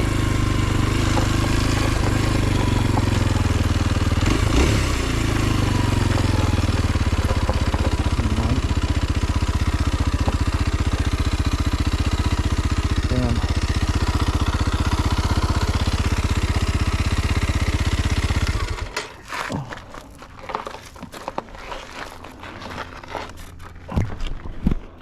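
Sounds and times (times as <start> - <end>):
motorcycle engine idling: 0.0 - 19.4.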